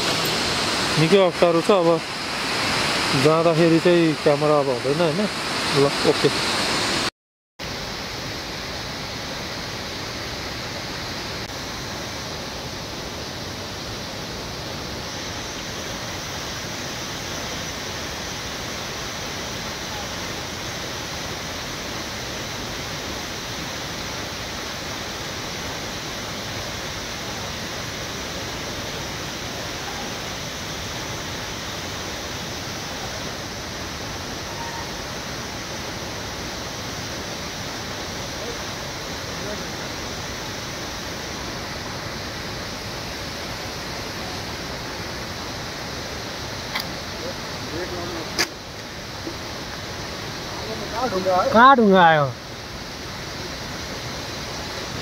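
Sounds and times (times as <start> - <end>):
waterfall roar: 0.0 - 7.1, 7.7 - 55.0.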